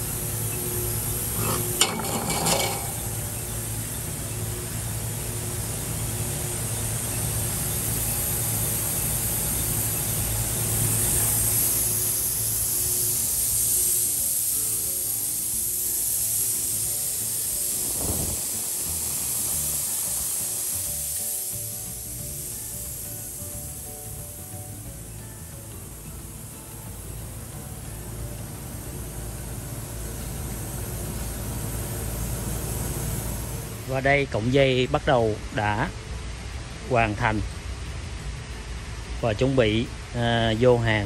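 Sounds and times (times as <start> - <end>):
factory machinery hiss and hum: 0.0 - 41.0
metallic clinks of tubes: 1.3 - 3.4.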